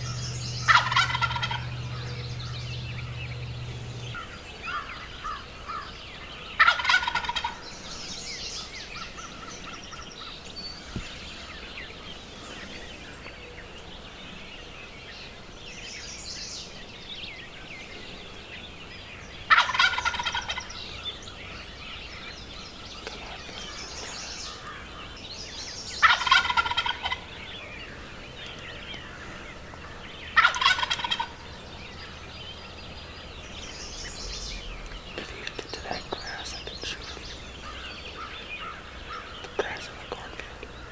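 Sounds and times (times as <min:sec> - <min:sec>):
turkey gobbling: 0:00.0 - 0:04.3, 0:06.6 - 0:07.7, 0:19.5 - 0:20.8, 0:26.0 - 0:28.0, 0:29.7 - 0:31.6
small birds chirping: 0:00.0 - 0:40.9.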